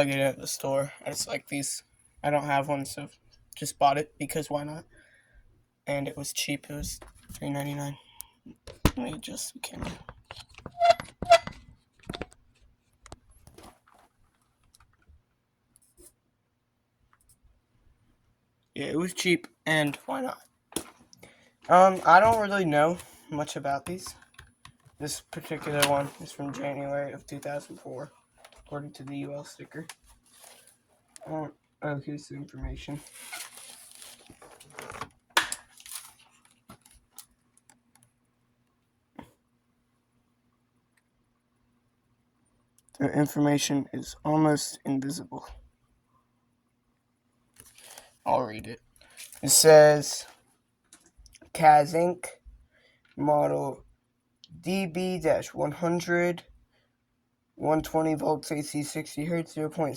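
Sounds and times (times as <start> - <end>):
plastic fan rustling: 23.9 - 30.9, 32.9 - 37.2.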